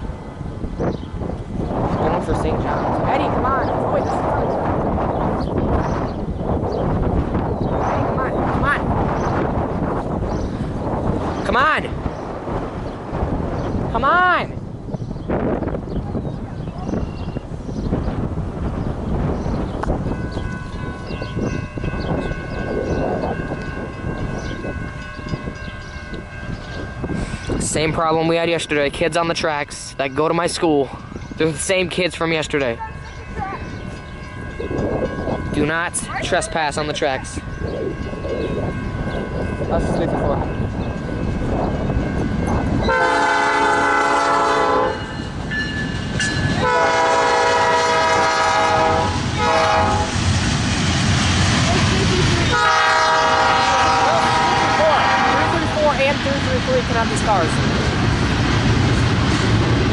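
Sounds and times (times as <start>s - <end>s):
train rumbling past: 0.0s - 59.9s
locomotive air horn blasts: 42.9s - 45.1s, 46.6s - 50.1s, 52.5s - 55.8s.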